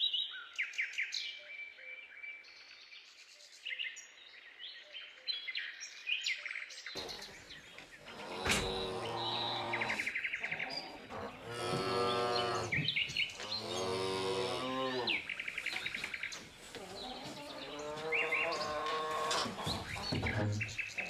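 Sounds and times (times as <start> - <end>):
small birds chirping: 0.0 - 21.0
cattle mooing: 7.0 - 15.9, 16.8 - 20.8.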